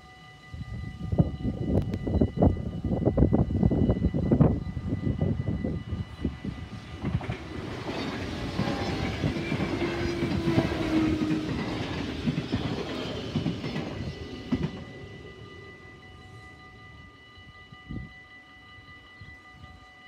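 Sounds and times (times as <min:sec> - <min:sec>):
crossing warning bell ringing: 0:00.0 - 0:20.0
train wheels clattering: 0:06.8 - 0:15.5.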